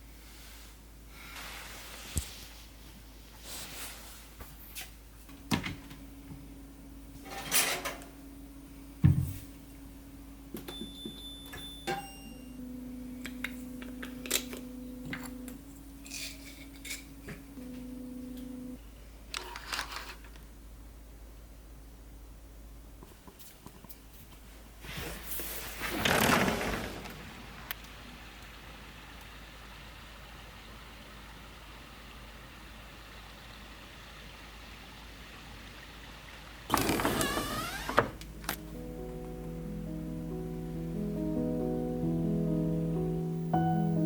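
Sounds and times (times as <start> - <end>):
appliance hum: 3.6 - 19.6, 24.9 - 44.0
dull thump: 9.0 - 9.5.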